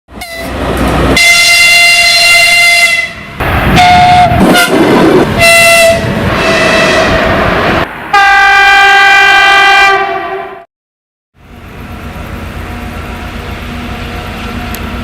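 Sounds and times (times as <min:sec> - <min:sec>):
locomotive horn blasts: 0:00.1 - 0:00.6, 0:01.2 - 0:07.3, 0:08.1 - 0:10.6
moving freight train: 0:00.1 - 0:10.6, 0:11.4 - 0:15.0.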